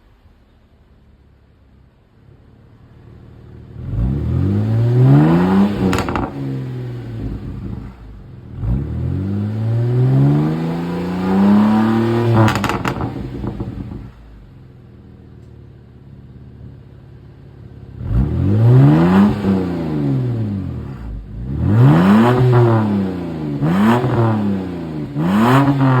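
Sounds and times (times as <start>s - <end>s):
car engine revving: 3.5s - 14.6s, 17.7s - 26.0s.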